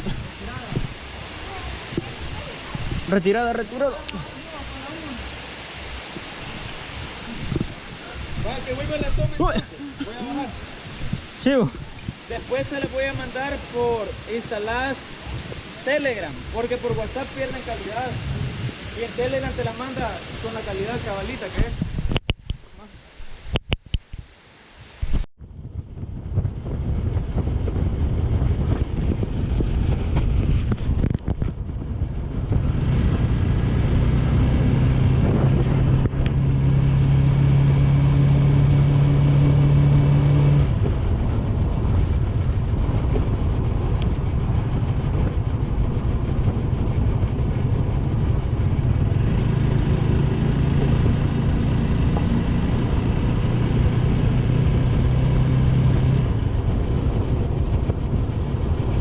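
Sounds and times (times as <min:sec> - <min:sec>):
wind buffeting microphone: 0:00.0 - 0:59.0
motorcycle engine hum: 0:25.6 - 0:59.0.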